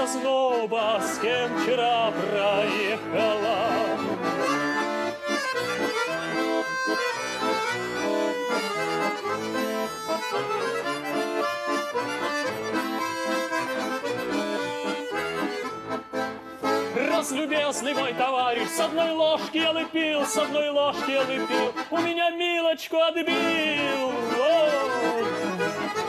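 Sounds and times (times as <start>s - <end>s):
button accordion playing: 0.0s - 26.0s.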